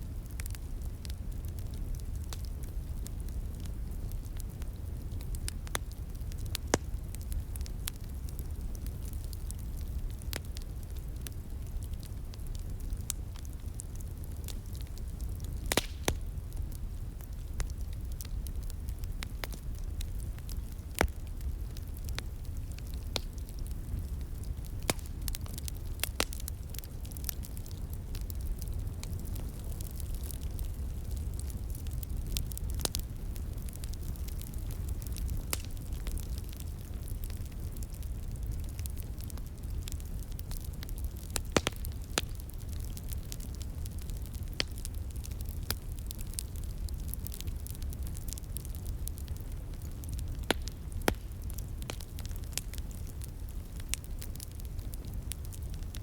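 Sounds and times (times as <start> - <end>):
wood fire crackling: 0.0 - 56.0
sharp pops of fire: 14.4 - 56.0.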